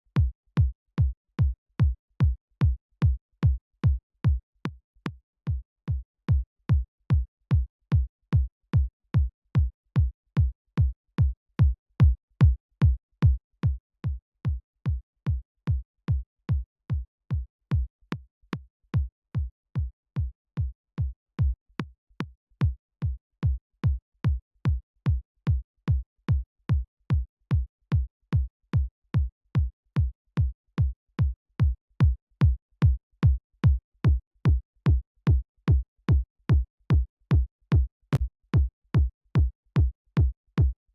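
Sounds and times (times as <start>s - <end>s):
electronic kick drum loop: 26.7s - 40.8s.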